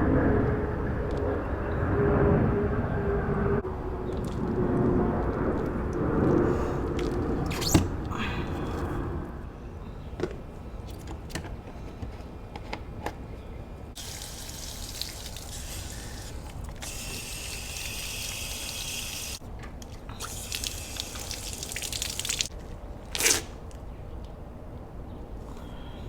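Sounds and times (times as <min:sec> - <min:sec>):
liquid pouring into a bottle: 0:14.0 - 0:19.4, 0:20.1 - 0:22.5.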